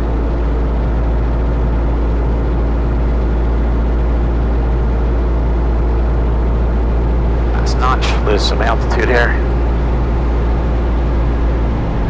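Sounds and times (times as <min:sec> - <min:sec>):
propeller plane cabin drone: 0:00.0 - 0:12.0
airflow noise: 0:07.5 - 0:09.5.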